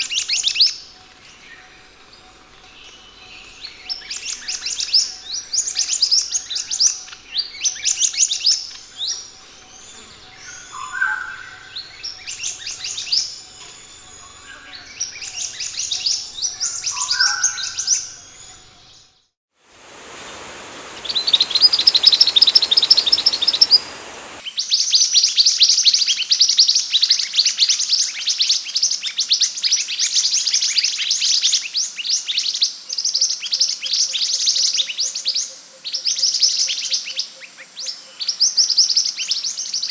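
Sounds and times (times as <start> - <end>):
bird chirping: 19.8 - 24.4
fast high bird trill: 19.8 - 24.4.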